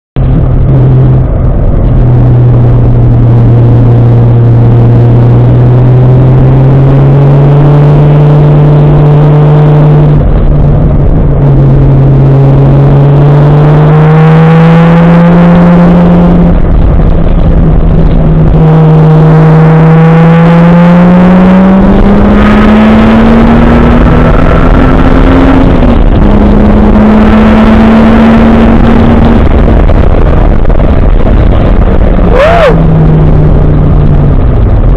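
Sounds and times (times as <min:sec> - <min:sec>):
car engine under load: 0:00.2 - 0:34.9.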